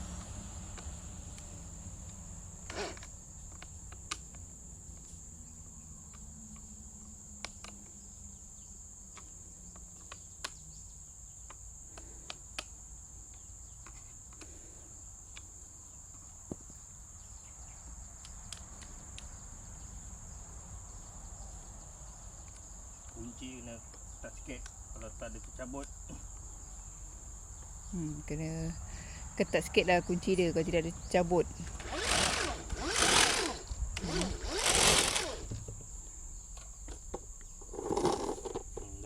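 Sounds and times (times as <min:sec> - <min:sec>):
high-pitched insect buzz: 0:29.5 - 0:36.6.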